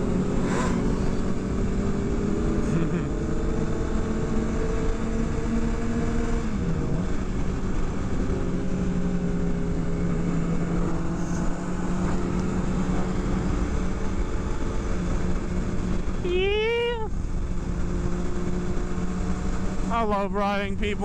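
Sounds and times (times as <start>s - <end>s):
wind rush: 0.0s - 1.9s
motorcycle engine cruising: 0.0s - 21.0s.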